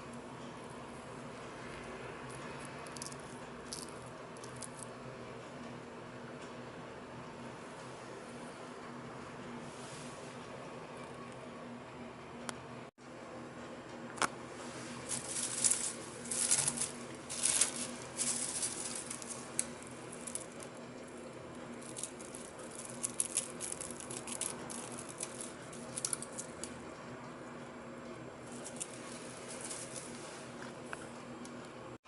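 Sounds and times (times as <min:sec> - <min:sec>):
low machine hum: 0:00.0 - 0:32.0
dry pieces rattling and rustling: 0:15.1 - 0:21.0, 0:21.6 - 0:26.7, 0:28.5 - 0:30.2.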